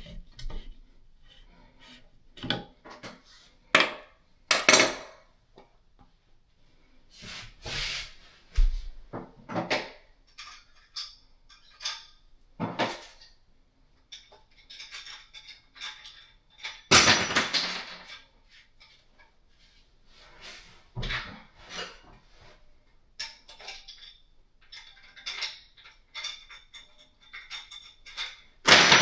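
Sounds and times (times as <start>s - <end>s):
tools being handled: 10.2s - 13.4s, 14.0s - 16.9s, 23.2s - 29.0s.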